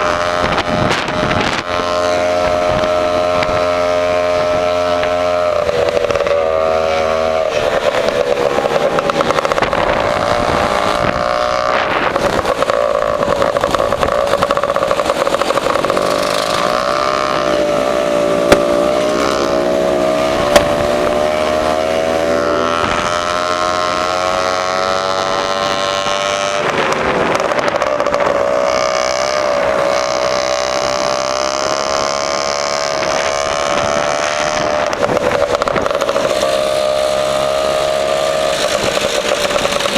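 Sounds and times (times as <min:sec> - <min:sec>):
scooter engine revving: 0:00.0 - 0:39.9.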